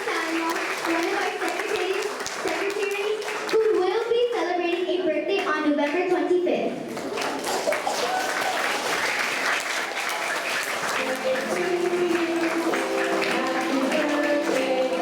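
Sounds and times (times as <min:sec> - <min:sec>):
children applauding: 0:00.0 - 0:03.6, 0:07.0 - 0:15.0
music with singing: 0:11.0 - 0:15.0.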